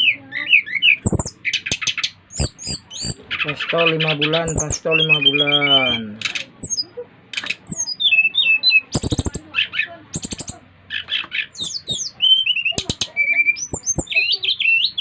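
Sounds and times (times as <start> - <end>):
harsh rattling chatter: 0.0 - 4.8, 6.0 - 14.7
flycatcher whistled song: 1.0 - 3.2, 4.5 - 5.9, 6.6 - 6.8, 7.7 - 9.4, 10.2 - 10.6, 11.5 - 15.0
sharp bird clicks: 1.0 - 3.5, 4.4 - 5.1, 6.2 - 8.1, 8.9 - 9.5, 10.1 - 14.4.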